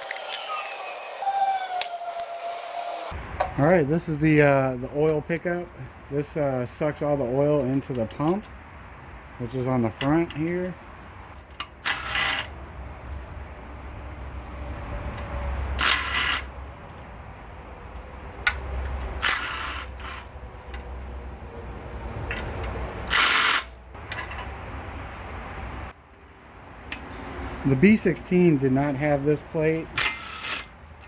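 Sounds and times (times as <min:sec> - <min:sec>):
ratchet wrench clicking: 0:15.8 - 0:16.5, 0:18.8 - 0:20.8, 0:23.0 - 0:23.8.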